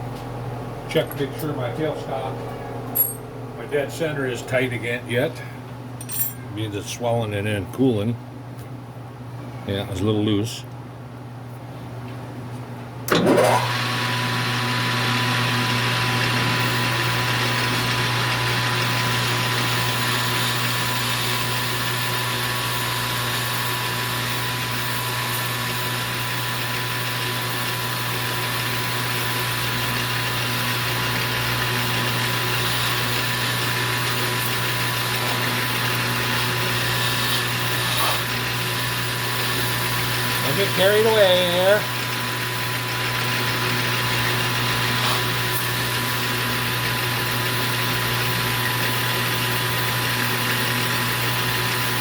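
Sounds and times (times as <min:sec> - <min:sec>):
metal lathe motor hum: 0:13.1 - 0:52.0.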